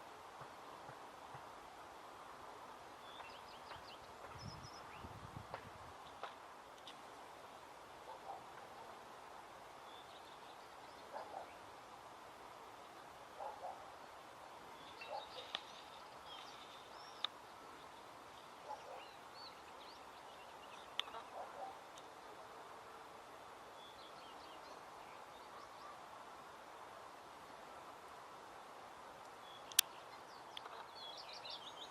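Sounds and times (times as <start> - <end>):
outdoor background hiss: 0.0 - 31.9
small birds chirping: 3.0 - 5.2, 12.8 - 22.1, 29.3 - 31.9
low bird calls: 14.7 - 21.9.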